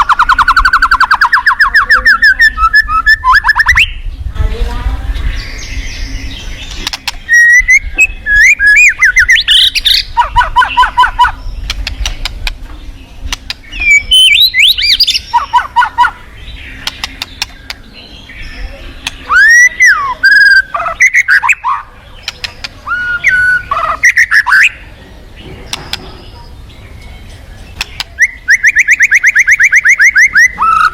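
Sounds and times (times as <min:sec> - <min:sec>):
bird singing whistled phrases: 0:00.0 - 0:04.1, 0:05.4 - 0:11.6, 0:13.7 - 0:21.9, 0:22.8 - 0:24.8, 0:27.9 - 0:30.9.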